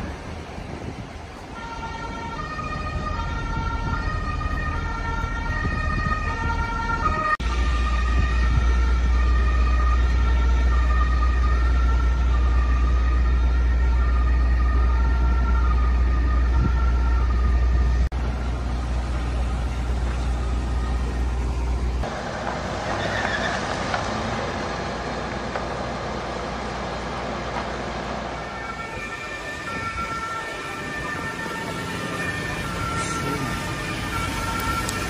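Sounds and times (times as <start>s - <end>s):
distant siren alternating tones: 0.0s - 35.0s
heavy low rumble: 2.8s - 22.8s.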